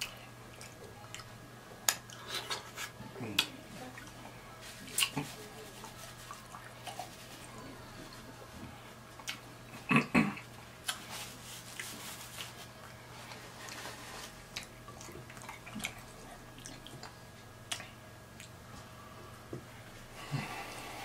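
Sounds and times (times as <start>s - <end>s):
chewing and lip smacking: 9.1s - 9.5s, 14.5s - 18.6s.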